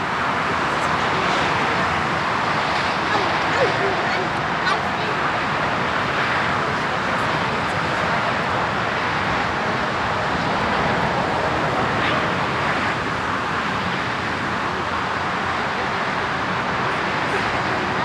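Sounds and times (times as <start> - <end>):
jet engines roaring: 0.4 - 18.0.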